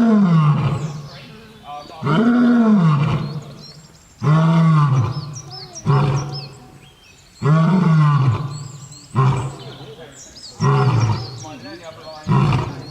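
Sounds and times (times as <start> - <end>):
lion roaring: 0.0 - 1.1, 2.0 - 6.8, 7.4 - 9.9, 10.6 - 11.4, 12.2 - 12.9.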